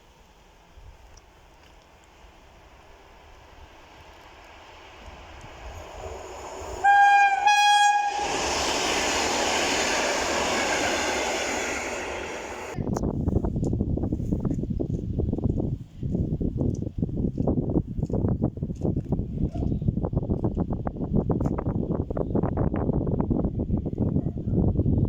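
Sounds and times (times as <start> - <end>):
train clattering: 0.0 - 12.8
train rolling rumble: 0.0 - 19.0
train horn blasts: 6.7 - 10.0.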